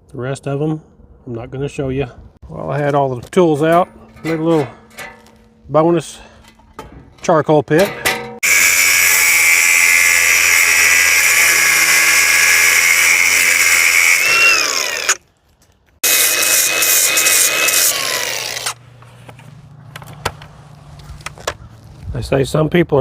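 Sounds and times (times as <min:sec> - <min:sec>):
angle grinder grinding steel: 0:03.5 - 0:06.7, 0:07.8 - 0:15.2, 0:16.0 - 0:18.8.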